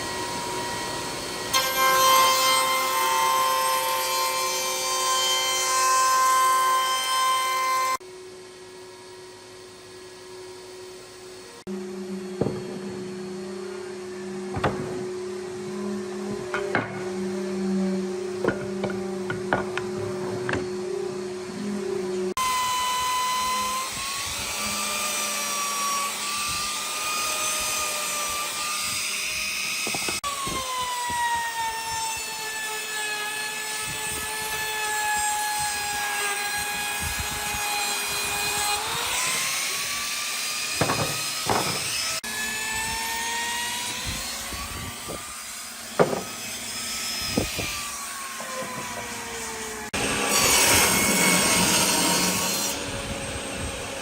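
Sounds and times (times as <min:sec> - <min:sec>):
power tool motor whine: 0:10.2 - 0:32.8
sharp knocks: 0:40.8 - 0:41.9, 0:46.0 - 0:46.4.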